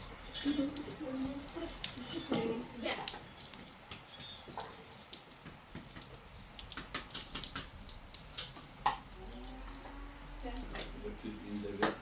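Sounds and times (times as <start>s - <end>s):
water splashing and dripping: 0.0s - 12.0s
light clicks and knocks: 3.1s - 9.2s.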